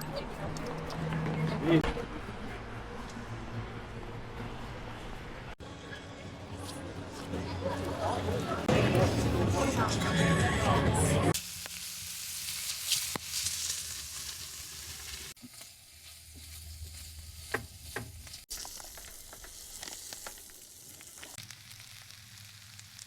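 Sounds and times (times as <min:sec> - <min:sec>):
food sizzling in a pan: 0:11.3 - 0:23.0.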